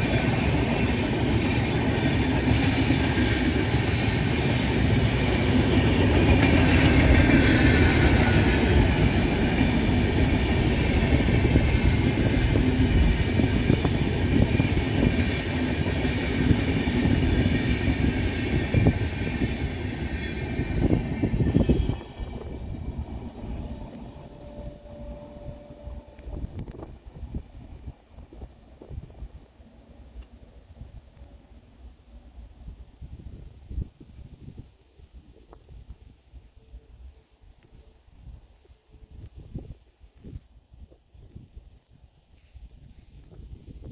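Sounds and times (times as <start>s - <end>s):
train wheels rumbling and clattering: 0.0s - 24.8s
faint high whine: 21.3s - 28.5s.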